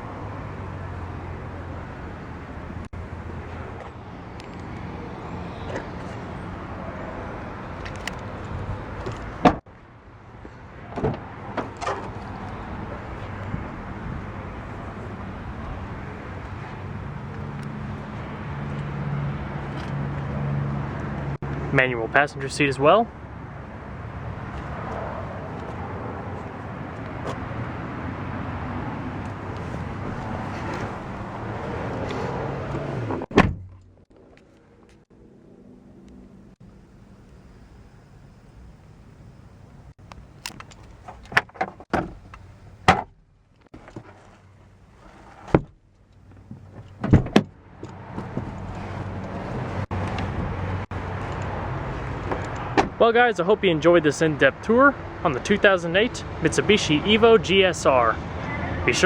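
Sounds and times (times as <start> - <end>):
traffic noise with low hum: 0.0 - 59.0
car door shutting: 29.1 - 33.8, 46.7 - 47.5, 52.2 - 53.0
car door thumping shut: 32.7 - 33.8, 42.8 - 43.1, 47.0 - 47.5, 52.8 - 53.0.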